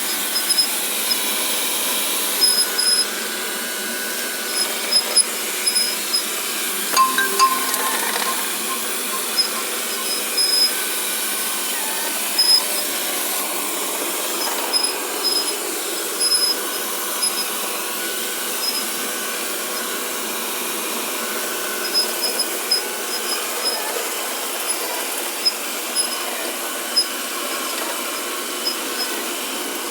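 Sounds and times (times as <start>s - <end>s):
vacuum cleaner running: 0.0s - 6.9s, 8.5s - 29.9s
short high-pitched squeaks: 6.9s - 10.7s.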